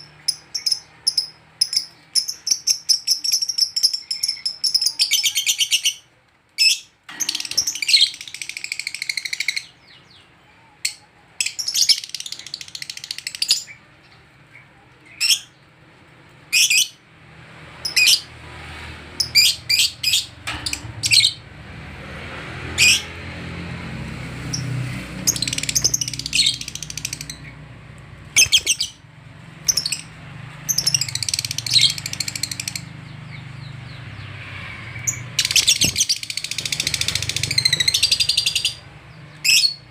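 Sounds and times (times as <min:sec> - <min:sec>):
lovebirds chattering: 0:00.0 - 0:15.7, 0:24.4 - 0:29.0, 0:29.6 - 0:39.9.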